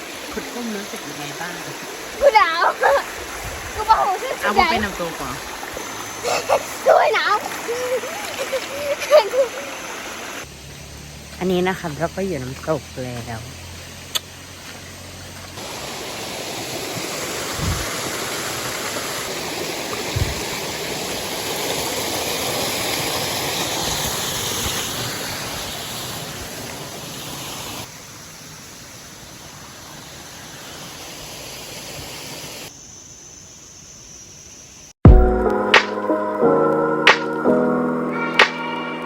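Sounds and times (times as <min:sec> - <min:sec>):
waterfall rushing: 0:00.0 - 0:10.4, 0:15.6 - 0:27.9
low thumps: 0:35.1 - 0:36.2.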